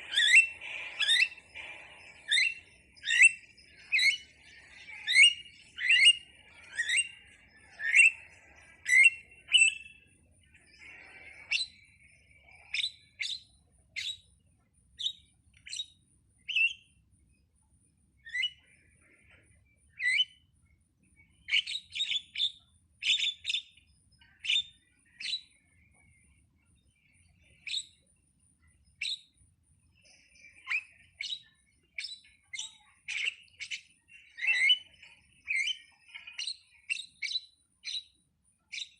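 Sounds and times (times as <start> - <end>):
starling calling: 0.0 - 14.3, 18.2 - 20.4, 21.2 - 26.4, 30.0 - 38.9.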